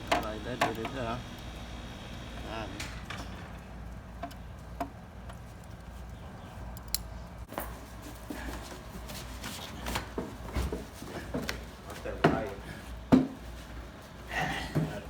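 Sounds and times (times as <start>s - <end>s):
steady low hum: 0.0s - 15.0s
light clicks and taps of parts: 0.1s - 1.5s, 2.8s - 7.6s.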